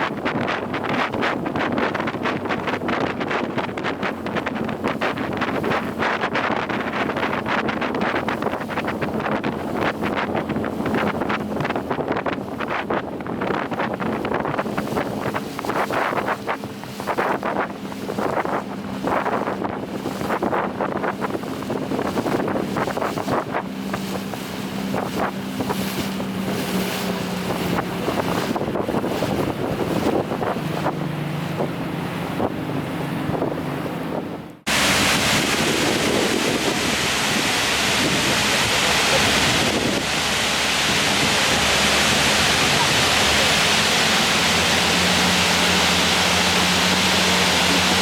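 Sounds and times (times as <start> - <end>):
boat engine hum: 0.0 - 48.0
water rushing past hull: 0.0 - 48.0
wind buffeting microphone: 0.0 - 48.0
waterfall rushing: 34.7 - 48.0.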